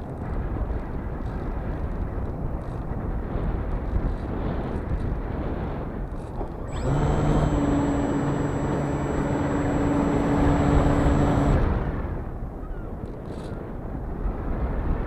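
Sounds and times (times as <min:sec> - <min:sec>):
model aircraft motor whining: 0:06.2 - 0:12.3.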